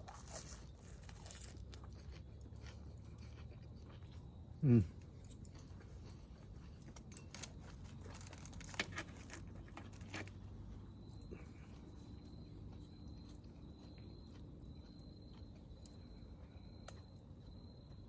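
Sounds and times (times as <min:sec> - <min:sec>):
cricket trilling: 0:00.0 - 0:18.0.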